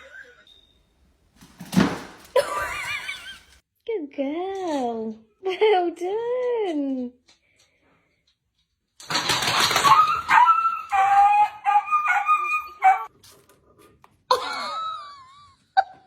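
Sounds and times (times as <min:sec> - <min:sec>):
dog yipping and howling: 0:09.7 - 0:13.1.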